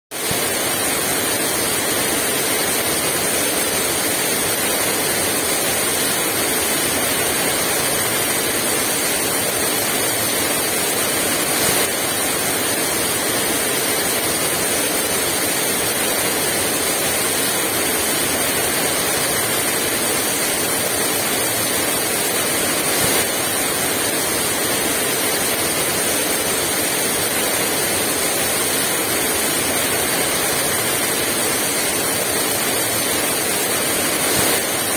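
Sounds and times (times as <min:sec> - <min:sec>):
heavy rain falling: 0:00.3 - 0:34.9.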